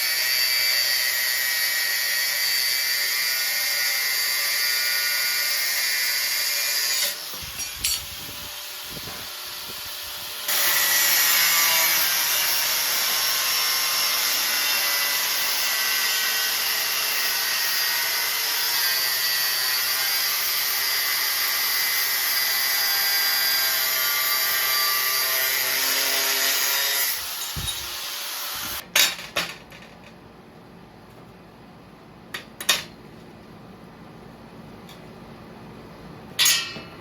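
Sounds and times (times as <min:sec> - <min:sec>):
power tool running: 0:01.9 - 0:28.8
sharp clanks: 0:36.4 - 0:37.0.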